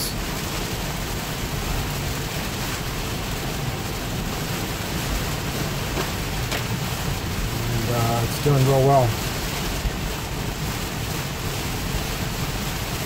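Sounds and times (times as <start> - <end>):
heavy rain on car: 0.0 - 13.0
tyres hissing through water: 4.8 - 9.7.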